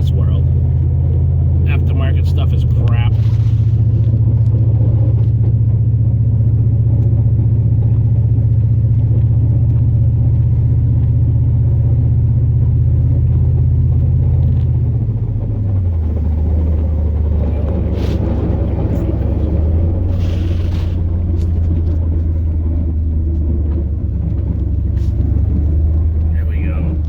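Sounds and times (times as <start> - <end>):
road noise: 0.0 - 27.0
truck engine drone: 0.0 - 27.0.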